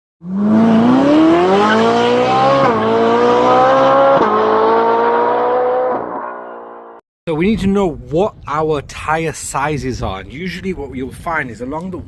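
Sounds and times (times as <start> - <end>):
car engine accelerating: 0.2 - 7.0.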